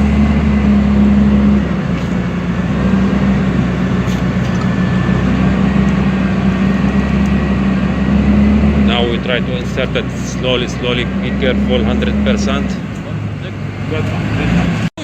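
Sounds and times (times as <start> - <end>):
heavy machine engine humming: 0.0 - 15.0.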